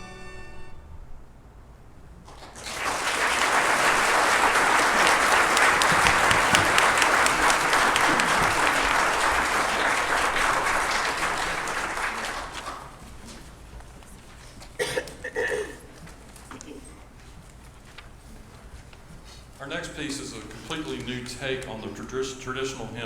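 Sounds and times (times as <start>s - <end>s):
audience applauding: 2.2s - 13.3s.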